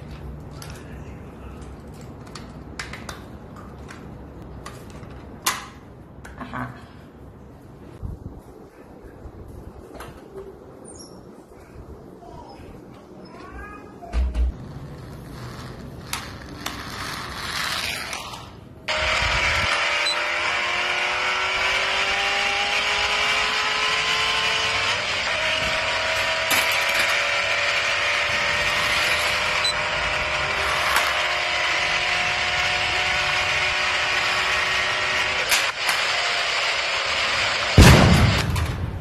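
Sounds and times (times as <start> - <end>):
car engine running: 18.9 - 35.5.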